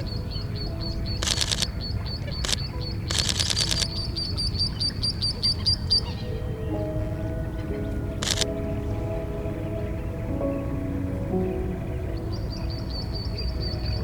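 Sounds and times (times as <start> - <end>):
bird chirping: 0.0 - 14.0
camera shutter clicks: 1.2 - 1.7, 2.4 - 4.1, 8.2 - 8.5.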